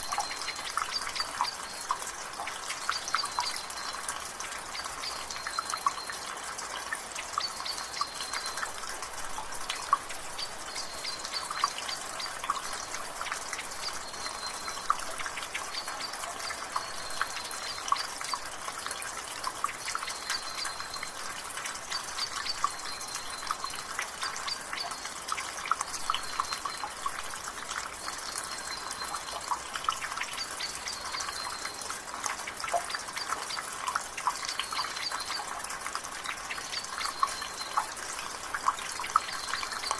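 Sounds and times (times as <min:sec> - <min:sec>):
rain hiss: 0:00.0 - 0:39.9
water dripping from gutter: 0:00.0 - 0:39.9.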